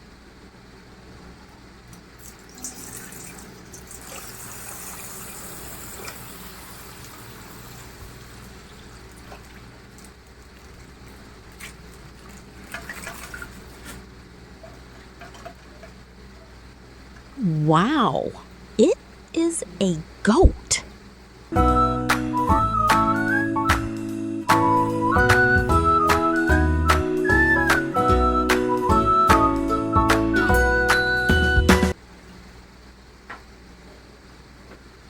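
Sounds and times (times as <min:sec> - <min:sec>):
water pouring and splashing: 0:02.2 - 0:14.0.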